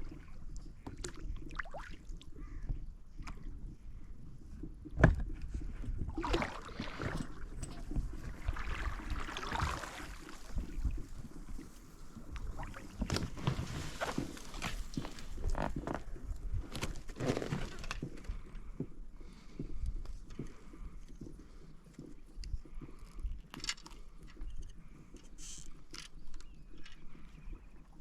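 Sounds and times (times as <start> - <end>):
water splashing and lapping: 0.0 - 2.3, 5.8 - 16.3.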